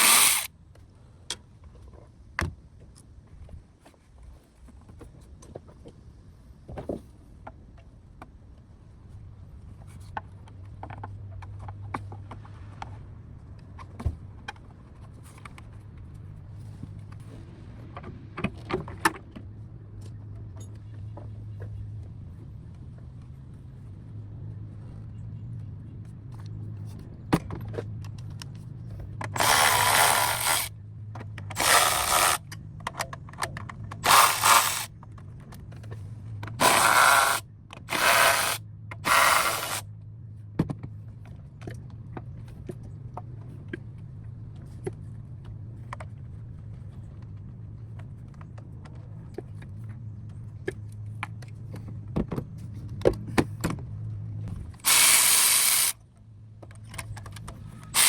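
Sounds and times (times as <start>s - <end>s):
power tool bursts: 0.0s - 0.5s, 29.4s - 30.7s, 31.5s - 32.4s, 34.0s - 34.9s, 36.6s - 39.8s, 54.8s - 56.0s.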